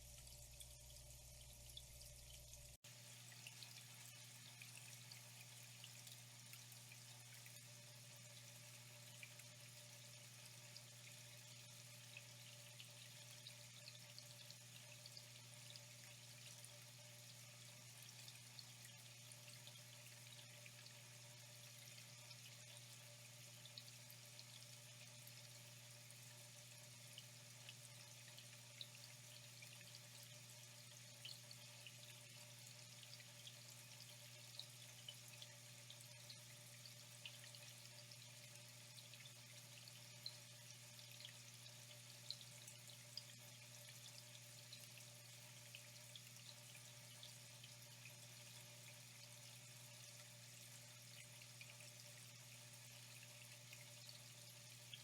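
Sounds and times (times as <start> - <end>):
water drips and splashes: 0.0 - 55.0.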